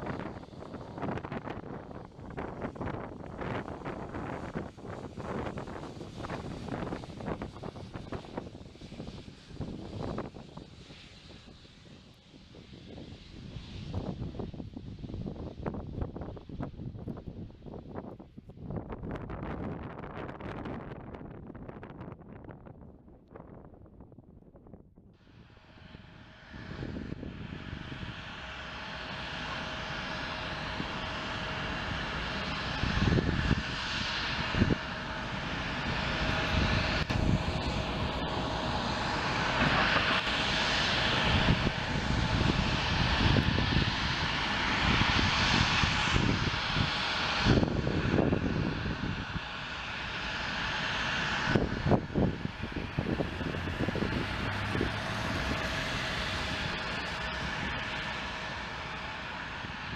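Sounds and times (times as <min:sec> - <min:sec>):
jet airliner landing: 0:00.0 - 0:59.9
wind thumps on microphone: 0:50.8 - 0:59.9.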